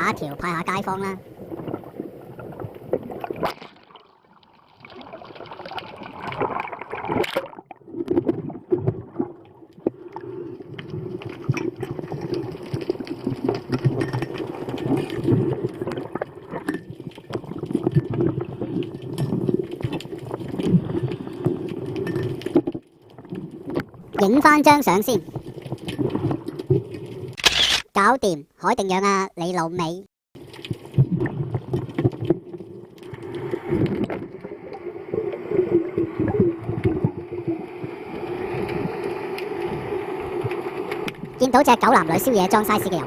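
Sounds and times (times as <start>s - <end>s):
water sloshing and gurgling: 0.0s - 27.4s, 30.4s - 43.0s
small clicks: 27.4s - 27.9s.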